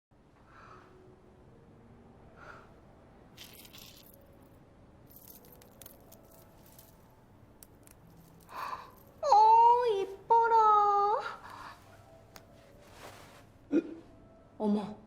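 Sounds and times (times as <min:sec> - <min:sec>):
small hard objects rattling: 0:03.4 - 0:04.4, 0:05.1 - 0:09.2.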